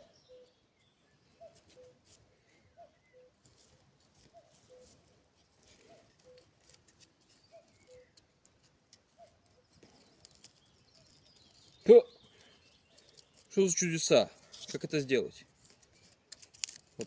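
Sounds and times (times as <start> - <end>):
small clicks: 15.6 - 17.0.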